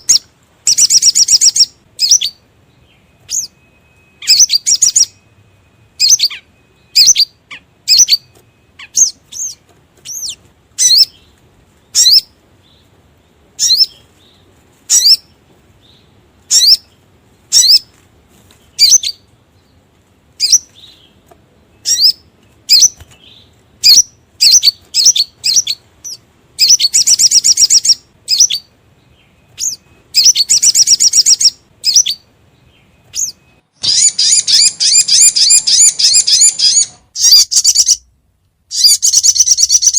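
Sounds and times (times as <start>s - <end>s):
fast rattling bird trill: 0.0s - 2.4s, 21.8s - 28.7s, 29.6s - 32.2s, 33.2s - 38.0s, 38.7s - 39.9s
sharp high bird chirps: 0.0s - 11.3s, 11.9s - 12.4s, 13.6s - 17.9s, 18.8s - 19.3s, 20.4s - 21.2s, 21.8s - 38.1s, 38.7s - 39.9s.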